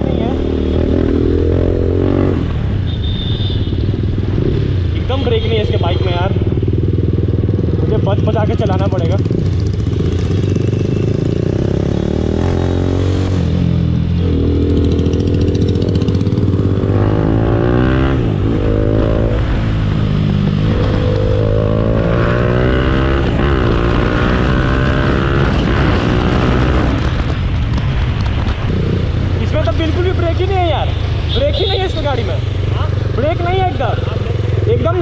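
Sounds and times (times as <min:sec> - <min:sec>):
motorcycle engine accelerating: 0:00.0 - 0:02.7, 0:06.3 - 0:29.5.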